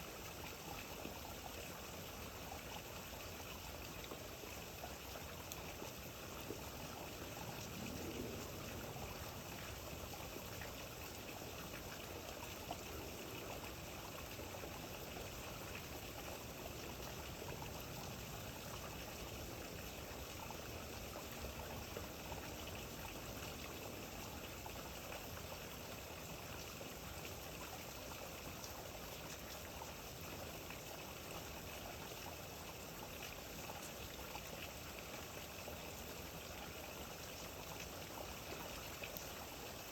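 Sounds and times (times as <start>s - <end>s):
steady rain falling: 0.0s - 39.9s
faint raindrop ticks: 3.8s - 14.4s, 37.1s - 39.9s.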